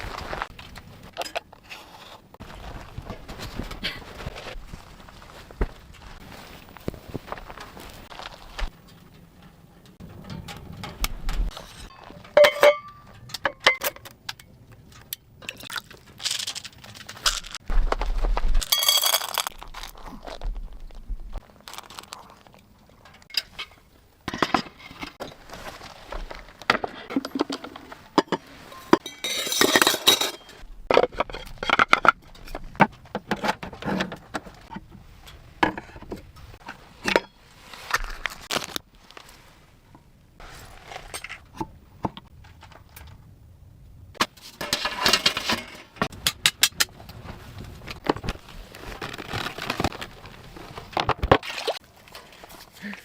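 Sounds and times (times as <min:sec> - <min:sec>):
rustling or crunching: 0:00.0 - 0:08.9, 0:15.7 - 0:23.3, 0:25.2 - 0:28.9, 0:36.4 - 0:41.4, 0:46.9 - 0:53.0
small hard objects clinking: 0:15.4 - 0:17.6, 0:18.6 - 0:22.8.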